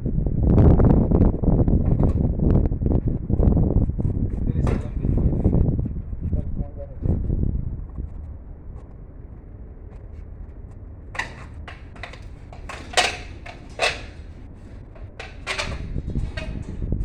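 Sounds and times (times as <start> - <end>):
hard objects knocking and clacking: 11.2 - 16.8.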